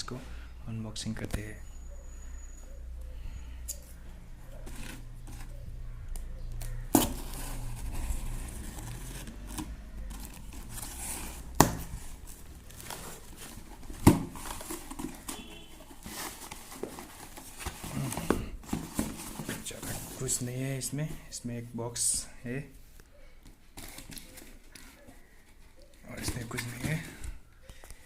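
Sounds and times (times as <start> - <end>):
cardboard and plastic crinkling: 6.6 - 21.1, 23.5 - 28.0.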